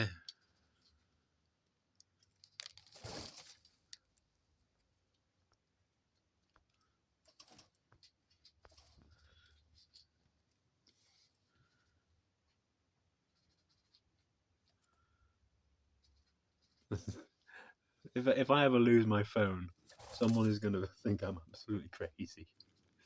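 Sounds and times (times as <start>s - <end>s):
dove pecking at birdseed: 0.2s - 17.0s
brief rustle: 2.4s - 4.0s.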